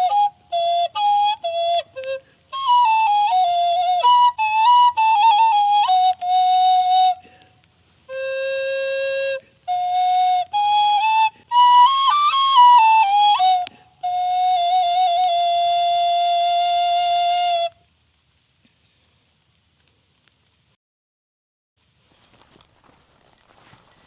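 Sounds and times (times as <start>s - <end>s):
solo recorder melody: 0.0s - 7.3s, 8.1s - 17.8s
person breathing: 7.2s - 7.6s.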